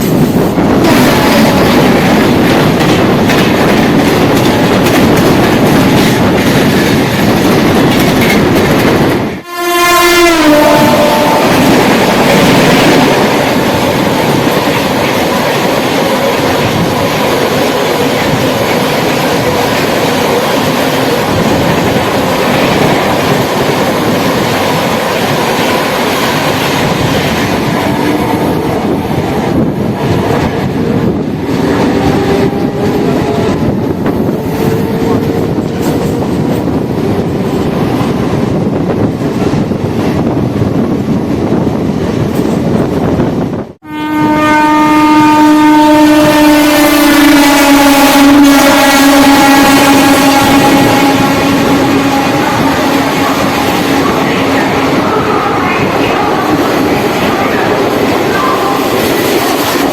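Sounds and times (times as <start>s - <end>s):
train wheels clattering over rail joints: 0.0s - 9.3s
train horn: 0.8s - 2.1s, 9.4s - 12.1s, 31.8s - 35.4s, 43.8s - 57.7s.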